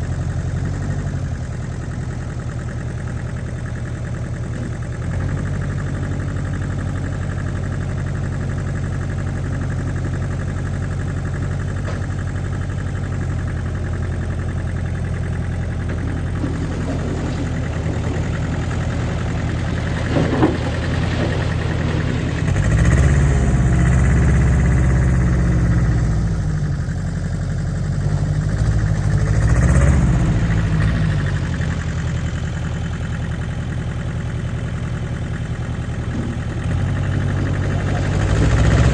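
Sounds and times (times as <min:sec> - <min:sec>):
tractor diesel engine idling: 0:00.0 - 0:38.9
short clunk: 0:11.8 - 0:12.2.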